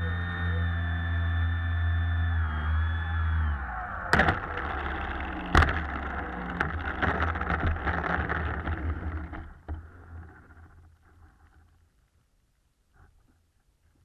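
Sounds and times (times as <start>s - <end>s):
model plane electric motor whine: 0.0s - 10.6s.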